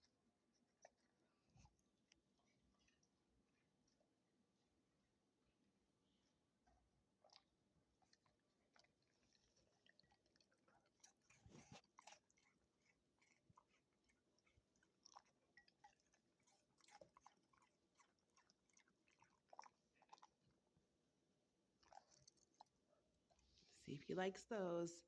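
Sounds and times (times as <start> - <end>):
dog chewing treats: 8.0 - 20.4.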